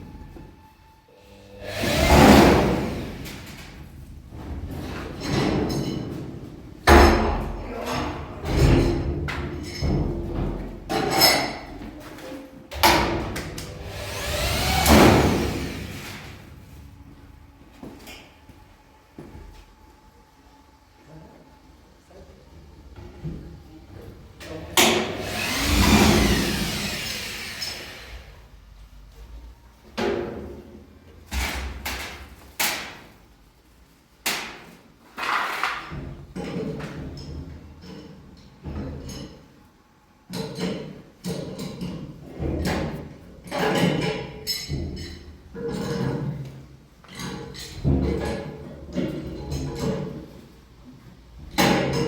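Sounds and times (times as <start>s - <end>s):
power tool motor whirring: 13.7s - 16.0s, 25.1s - 28.2s.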